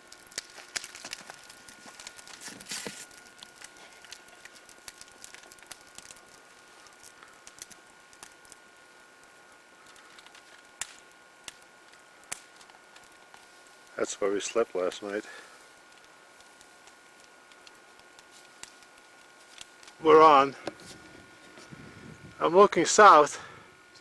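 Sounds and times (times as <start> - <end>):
campfire crackling and popping: 0.0 - 24.0
steady hiss: 0.0 - 24.0.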